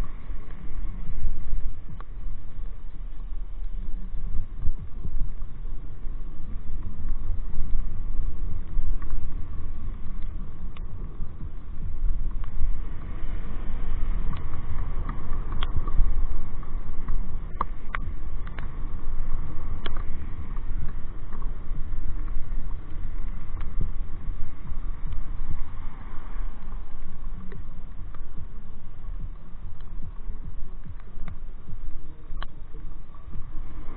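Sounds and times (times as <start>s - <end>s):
motorcycle engine and road rumble: 0.0s - 33.9s
wind buffeting microphone: 0.0s - 33.9s.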